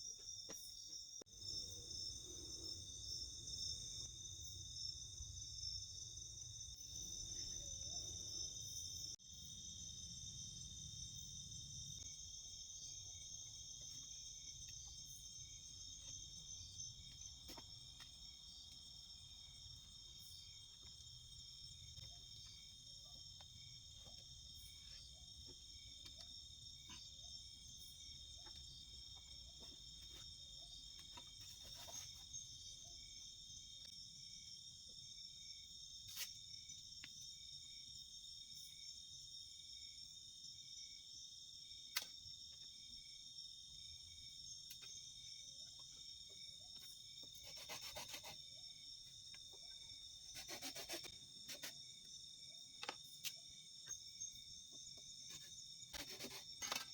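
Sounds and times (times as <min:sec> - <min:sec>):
crickets and insects chirping: 0:00.0 - 0:56.9
short rasping scrapes: 0:47.4 - 0:48.4, 0:50.3 - 0:51.8, 0:55.9 - 0:56.7.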